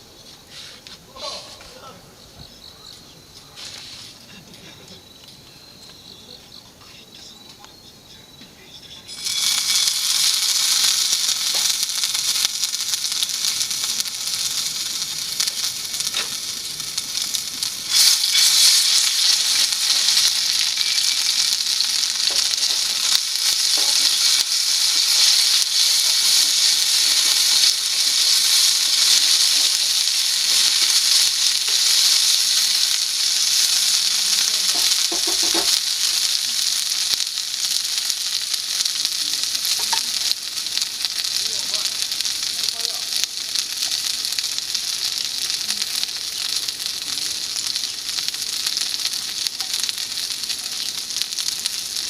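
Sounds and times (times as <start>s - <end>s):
oil popping: 9.1s - 47.0s
chicken sizzling in hot oil: 9.1s - 52.0s.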